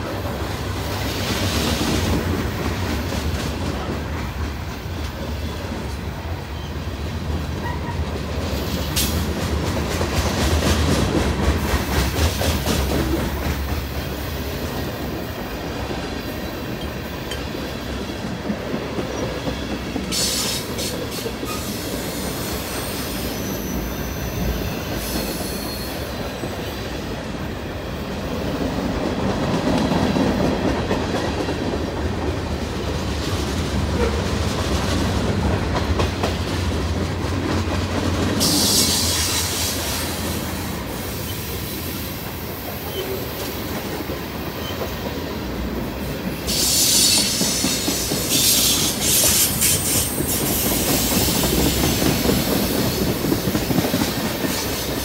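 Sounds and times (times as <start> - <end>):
freight cars rolling on rails: 0.0 - 55.0
high wheel squeal: 19.6 - 26.7.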